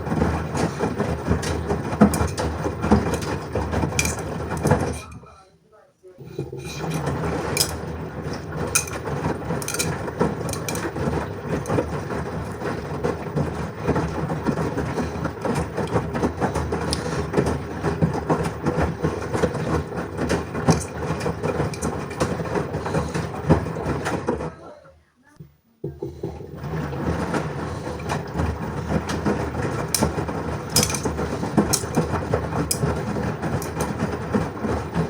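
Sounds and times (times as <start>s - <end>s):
load knocking and clattering: 0.0s - 5.4s, 6.2s - 24.5s, 25.9s - 35.0s
washing machine drum rumbling: 0.0s - 5.4s, 6.2s - 35.0s.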